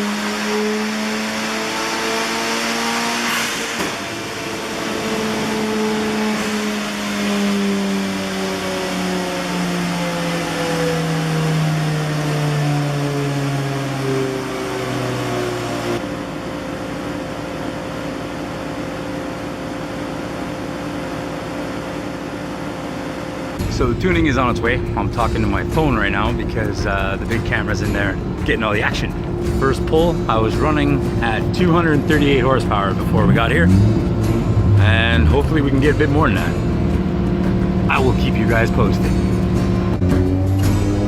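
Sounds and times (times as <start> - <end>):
rotary engine running on dyno: 0.0 - 41.0
steady quieter hum: 13.8 - 40.0.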